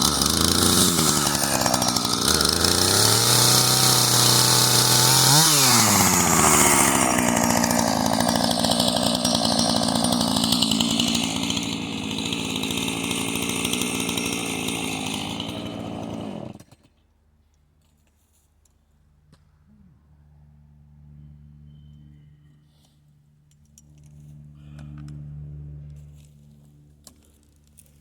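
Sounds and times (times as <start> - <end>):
chainsaw running: 0.0 - 17.0.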